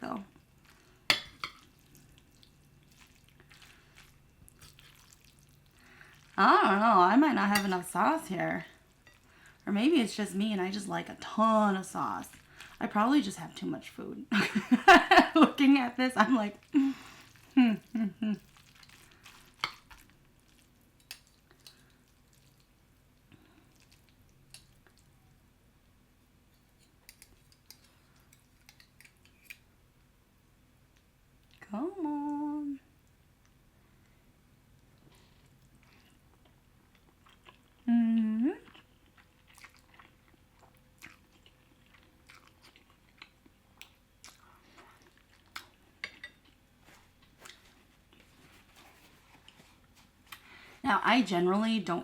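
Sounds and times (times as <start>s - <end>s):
wet chewing mouth sounds: 34.9s - 37.9s, 38.6s - 45.8s.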